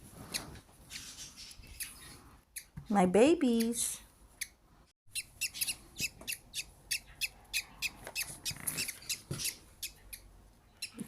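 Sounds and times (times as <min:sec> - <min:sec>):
budgie chicks cheeping: 0:04.4 - 0:11.0.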